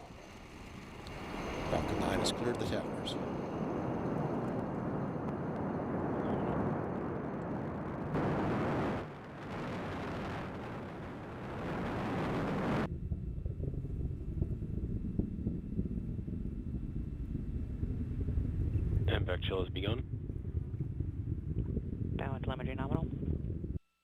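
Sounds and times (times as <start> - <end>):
rocket engines thundering: 0.0 - 23.8.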